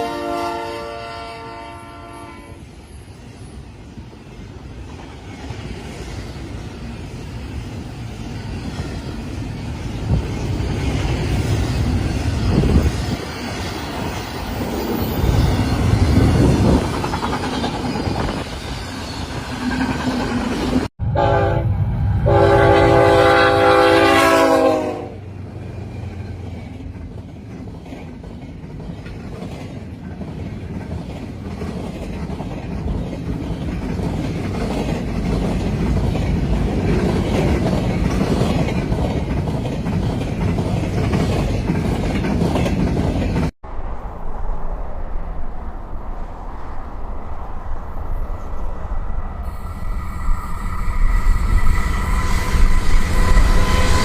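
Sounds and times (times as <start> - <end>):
locomotive horn blasts: 0.0 - 2.6, 21.0 - 25.2
train rumbling and clattering: 0.0 - 54.0.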